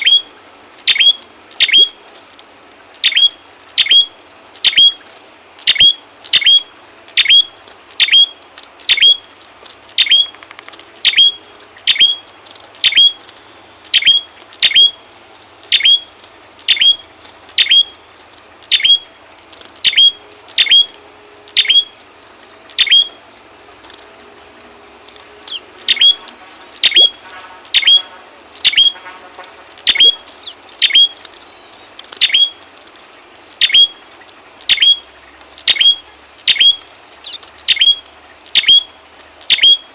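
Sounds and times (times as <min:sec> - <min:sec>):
bird chattering trills: 0:00.0 - 0:02.0, 0:03.0 - 0:05.0, 0:05.7 - 0:08.3, 0:08.9 - 0:09.2, 0:09.9 - 0:13.2, 0:13.8 - 0:15.0, 0:15.6 - 0:18.0, 0:18.6 - 0:19.1, 0:19.8 - 0:21.9, 0:25.5 - 0:32.6, 0:33.6 - 0:34.0, 0:34.6 - 0:39.8.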